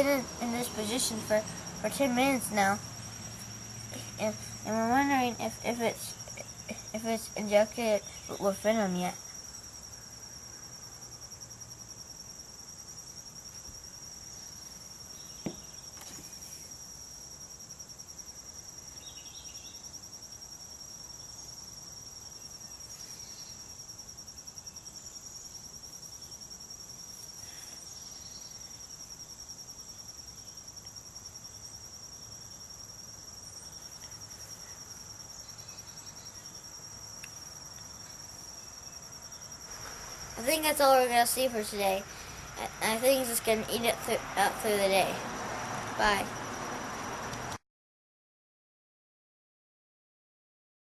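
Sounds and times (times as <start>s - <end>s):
insects trilling: 0.0s - 47.6s.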